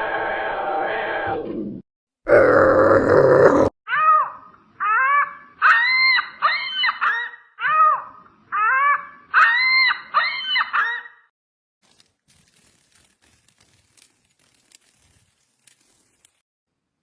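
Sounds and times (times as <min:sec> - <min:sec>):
animal high-pitched calls: 0:03.9 - 0:11.2.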